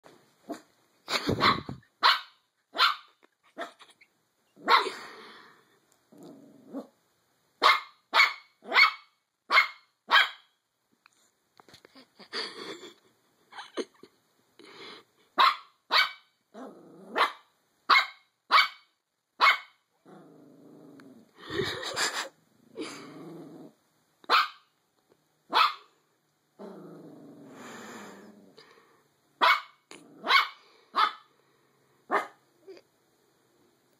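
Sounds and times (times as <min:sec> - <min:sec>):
small dog barking: 0:00.5 - 0:03.9, 0:04.6 - 0:05.0, 0:07.6 - 0:10.5, 0:15.4 - 0:16.3, 0:17.1 - 0:19.8, 0:24.3 - 0:24.7, 0:25.5 - 0:25.9, 0:29.4 - 0:31.3, 0:32.1 - 0:32.4
dog growling: 0:06.1 - 0:06.9, 0:16.5 - 0:17.2, 0:20.0 - 0:21.5, 0:22.7 - 0:23.8, 0:26.6 - 0:28.8.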